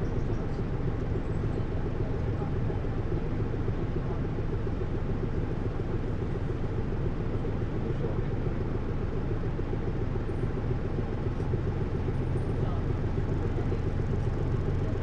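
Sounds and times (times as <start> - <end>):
bus engine low rumble: 0.0 - 15.0.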